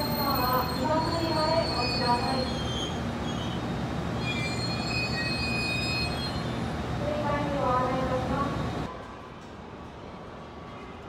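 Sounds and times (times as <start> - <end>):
high wheel squeal: 0.0 - 6.7
electric train rumbling: 0.0 - 10.6.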